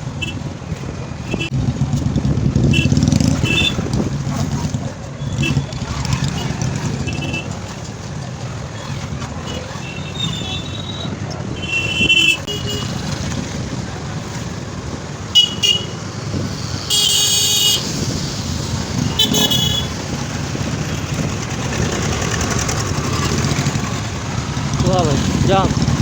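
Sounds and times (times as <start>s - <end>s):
motorcycle engine and road noise: 0.0s - 26.0s
vehicle horns honking: 2.7s - 3.8s, 9.4s - 13.0s, 15.3s - 16.1s, 16.8s - 18.0s, 19.0s - 20.1s.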